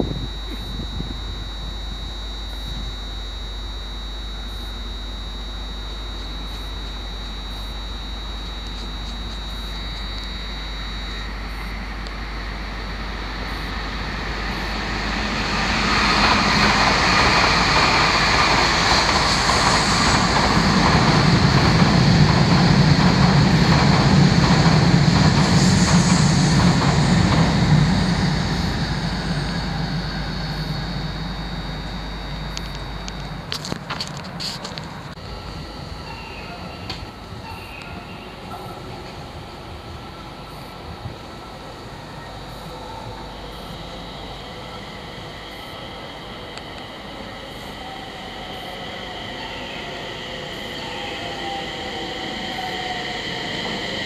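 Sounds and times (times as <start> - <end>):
steady high-pitched tone: 0.0 - 54.0
train rumbling past: 11.2 - 54.0.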